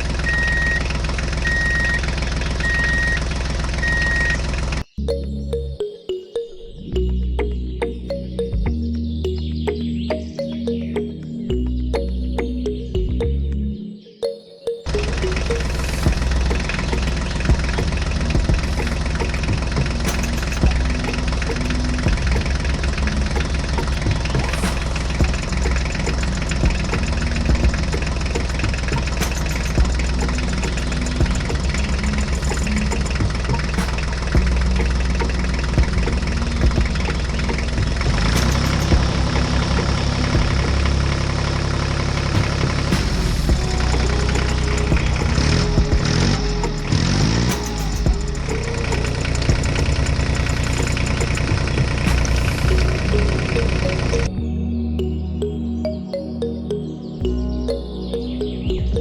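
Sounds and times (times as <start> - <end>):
small engine idling: 0.0 - 4.8, 14.9 - 54.3
engine idling with light knocking: 48.1 - 52.6.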